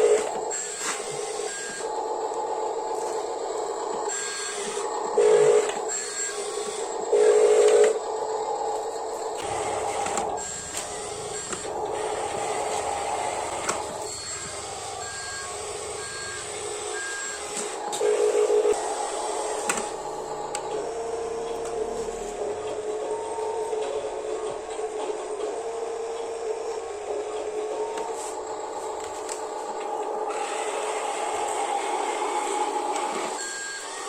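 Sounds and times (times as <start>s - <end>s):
small electric motors whirring: 0.0s - 20.9s.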